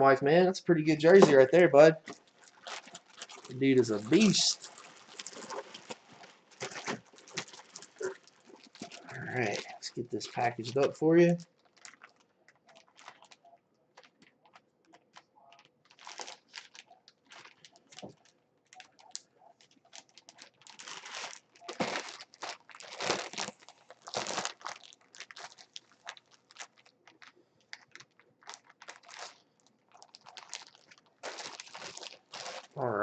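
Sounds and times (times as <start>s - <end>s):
plastic packaging crinkling: 1.0s - 32.8s
plastic rasping: 2.0s - 9.8s.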